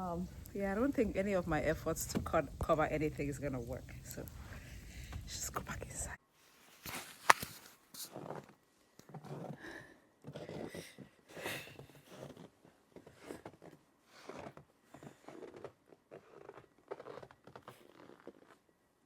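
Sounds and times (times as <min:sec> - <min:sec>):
footsteps crunching in snow: 0:06.5 - 0:08.5.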